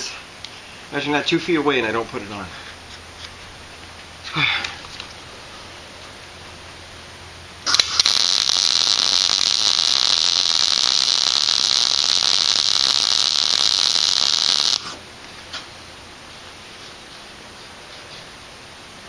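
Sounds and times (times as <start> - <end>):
welder arc hissing and crackling: 7.6 - 15.0.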